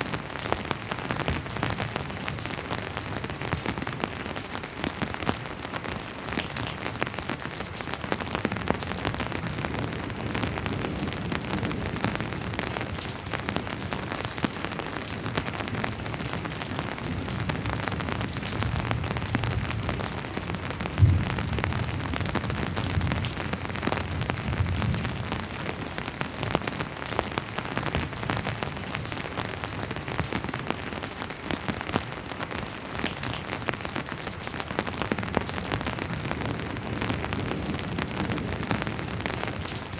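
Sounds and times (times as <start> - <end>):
steady rain: 0.0 - 39.9
distant thunder rumble: 18.6 - 25.2.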